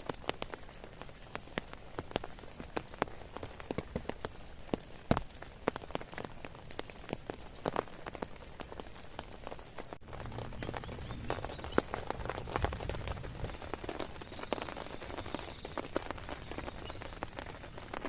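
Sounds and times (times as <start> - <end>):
rain hissing: 0.0 - 18.0.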